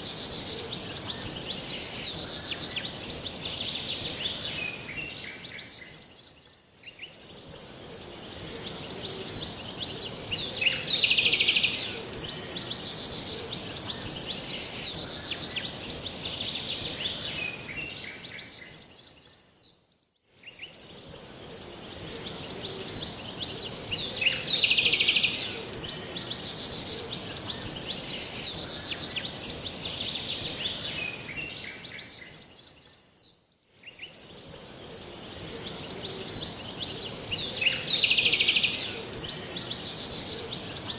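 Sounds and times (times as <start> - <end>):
small birds chirping and singing: 20.5 - 40.9.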